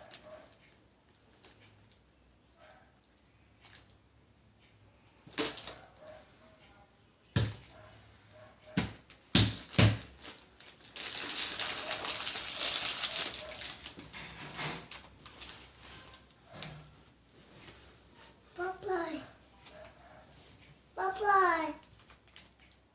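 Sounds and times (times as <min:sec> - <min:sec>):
rustling and crinkling popcorn: 0:05.2 - 0:06.2, 0:09.1 - 0:20.7, 0:21.8 - 0:22.9
popcorn crunching: 0:09.7 - 0:15.7.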